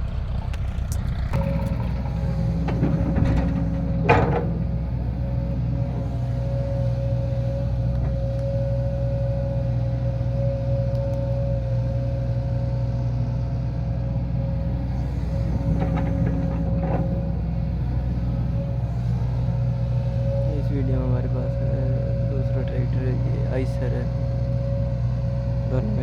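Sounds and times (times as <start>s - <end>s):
steady whine: 0.0s - 12.3s
tractor diesel engine running: 0.0s - 26.0s.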